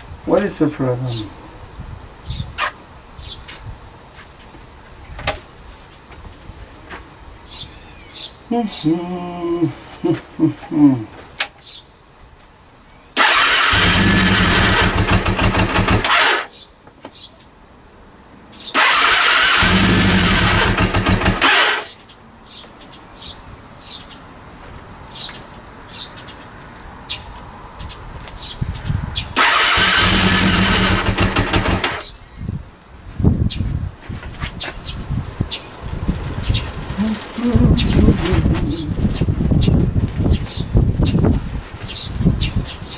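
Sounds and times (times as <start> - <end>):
engine cranked by starter: 13.2 - 16.5, 18.7 - 22.0, 29.4 - 32.1.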